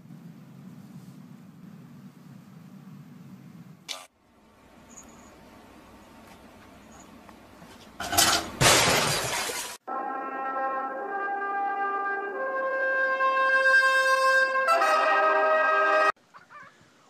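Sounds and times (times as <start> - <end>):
brass music with held notes: 9.9 - 16.2.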